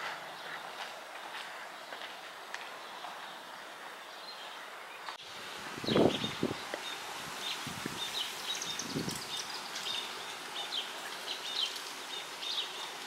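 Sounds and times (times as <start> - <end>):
birds chirping: 0.0 - 13.0
steady outdoor hiss: 0.0 - 13.0.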